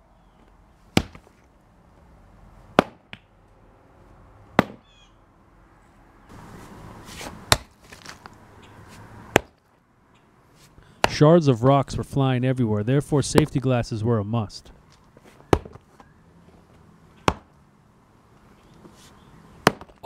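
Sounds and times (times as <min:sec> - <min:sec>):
sledgehammer striking concrete: 0:02.8 - 0:03.1, 0:04.6 - 0:04.8, 0:09.3 - 0:09.6.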